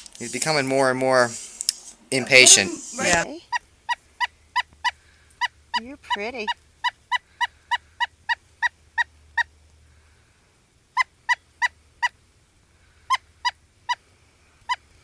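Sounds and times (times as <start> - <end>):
woodpecker calls: 3.1 - 10.0, 10.9 - 15.0.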